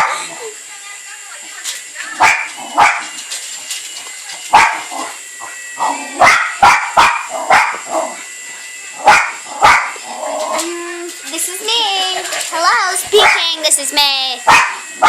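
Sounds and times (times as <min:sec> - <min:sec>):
dog barking: 0:02.2 - 0:03.1, 0:04.5 - 0:04.9, 0:06.2 - 0:07.8, 0:09.0 - 0:10.0, 0:13.2 - 0:13.5, 0:14.5 - 0:14.8.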